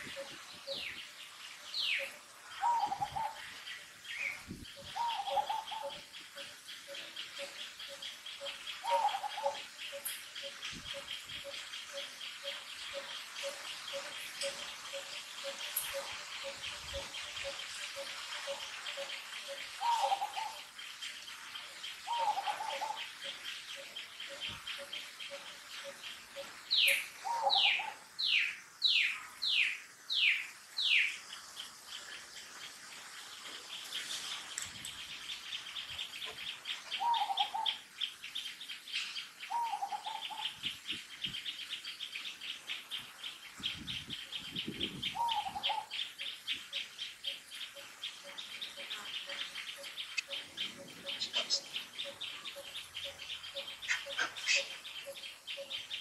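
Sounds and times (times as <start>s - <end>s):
fast bird trill: 48.4s - 56.0s.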